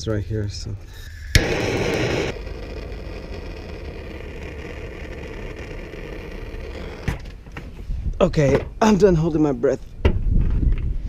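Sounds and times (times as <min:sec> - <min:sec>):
loud hiss: 0:00.8 - 0:07.2.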